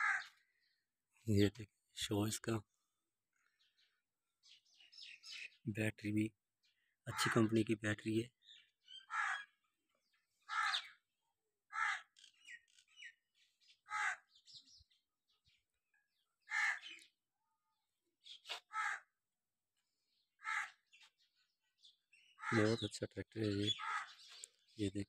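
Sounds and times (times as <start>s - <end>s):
bird calling: 0.0s - 0.8s, 6.7s - 7.6s, 8.4s - 11.1s, 11.7s - 15.0s, 15.6s - 17.2s, 20.1s - 25.0s.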